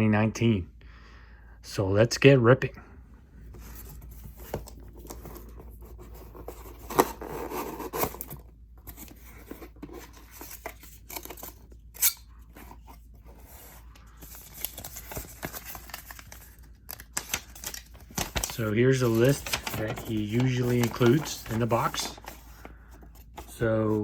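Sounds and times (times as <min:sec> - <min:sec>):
cardboard box being opened: 0:03.7 - 0:11.7.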